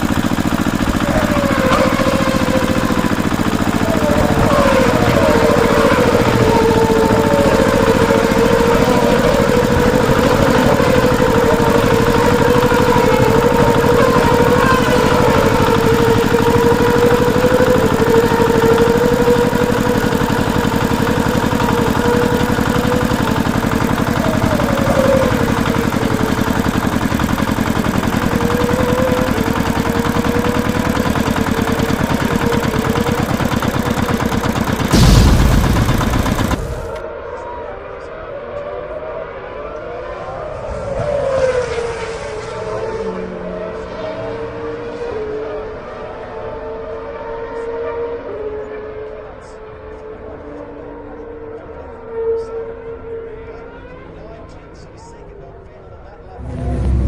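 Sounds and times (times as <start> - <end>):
small toy motor humming: 0.0 - 37.0.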